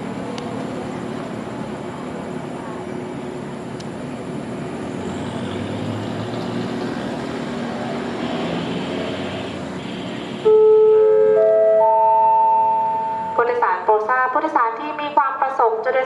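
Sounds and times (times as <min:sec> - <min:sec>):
diesel train engine hum: 0:00.0 - 0:16.0
public address chime: 0:10.5 - 0:15.2.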